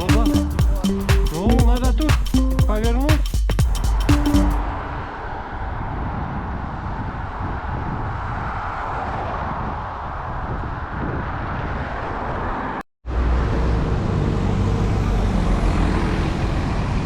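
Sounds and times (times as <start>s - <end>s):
road rumble: 3.6s - 10.4s, 11.3s - 17.0s
traffic noise: 3.6s - 17.0s
wind noise: 3.7s - 12.8s
passing vehicle hum: 4.6s - 9.4s, 11.4s - 17.0s.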